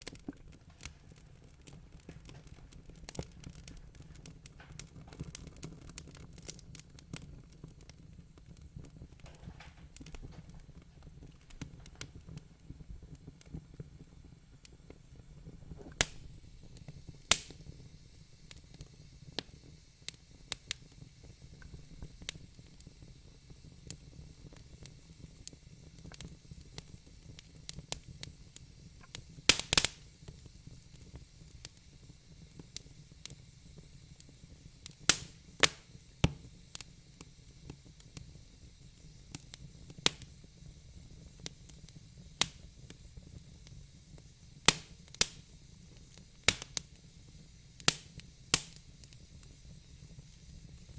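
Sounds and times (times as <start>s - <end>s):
fire hissing: 0.0s - 50.9s
wood fire crackling and popping: 0.0s - 50.9s.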